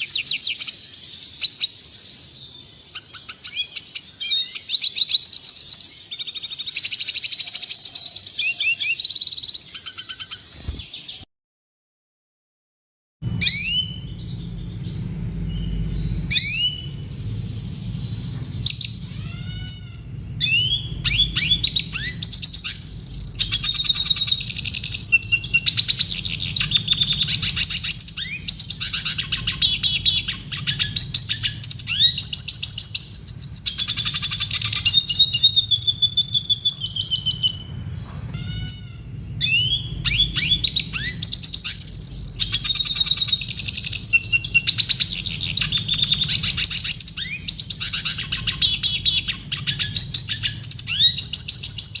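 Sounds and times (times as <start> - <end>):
bird singing trills and calls: 0.0 - 11.3, 13.3 - 52.0
low hum: 13.2 - 52.0.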